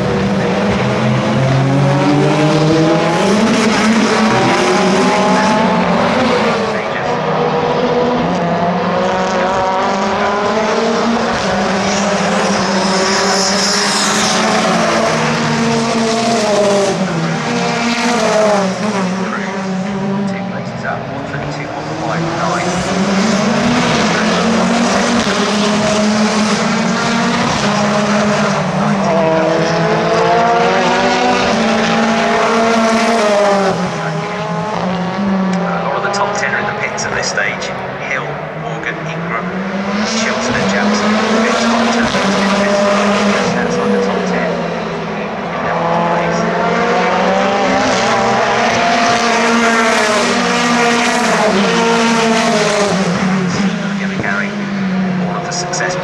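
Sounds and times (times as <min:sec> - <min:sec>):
racing car engines passing: 0:00.0 - 0:56.0.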